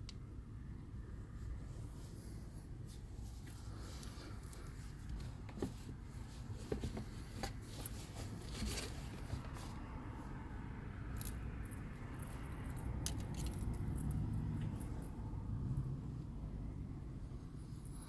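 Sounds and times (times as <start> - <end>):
steady low hum: 0.0 - 18.0
hands handling small objects: 11.1 - 15.2.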